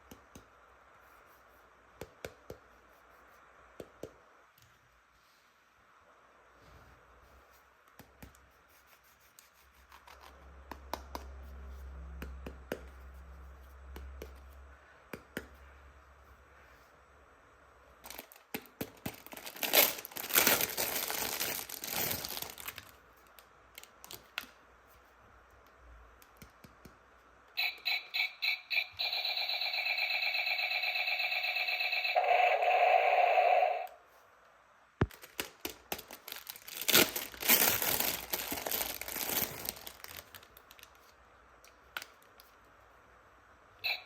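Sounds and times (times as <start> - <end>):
plastic packaging crinkling and tearing: 18.0 - 18.4, 19.1 - 23.0, 35.1 - 41.0.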